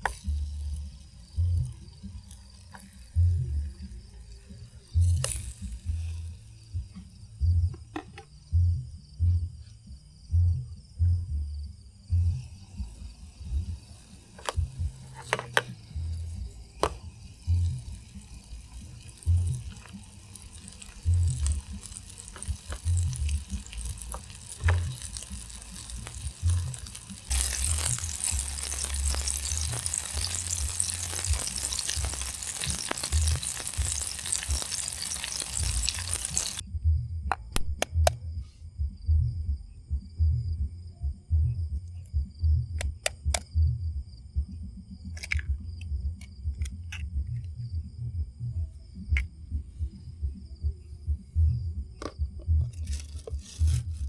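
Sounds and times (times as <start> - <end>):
food sizzling in a pan: 0.0 - 6.7, 12.4 - 36.6
soft background music: 0.1 - 37.3.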